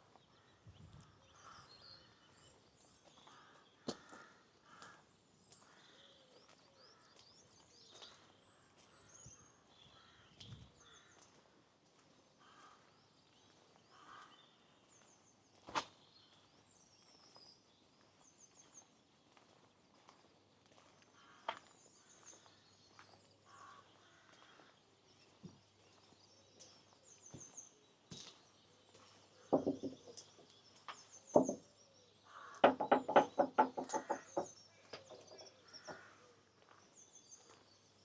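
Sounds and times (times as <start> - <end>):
small birds twittering faintly: 0.0 - 38.0
loud harsh bird calls: 32.3 - 36.4.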